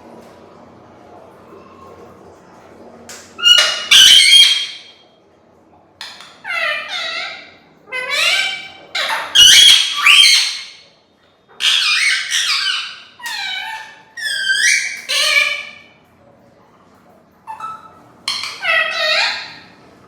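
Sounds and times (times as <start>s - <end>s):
parrot squawking: 3.4s - 4.9s, 6.0s - 10.8s, 11.6s - 15.9s, 17.5s - 19.8s.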